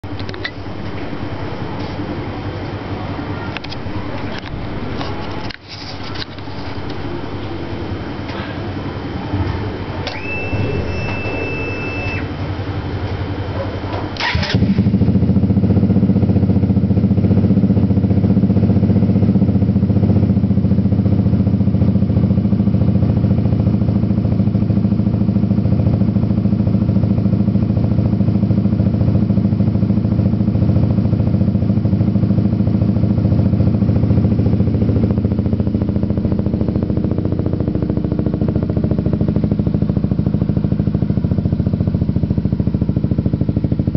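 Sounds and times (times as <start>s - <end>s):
high whine: 0.0s - 15.7s
motorcycle engine starting and idling: 0.0s - 43.9s.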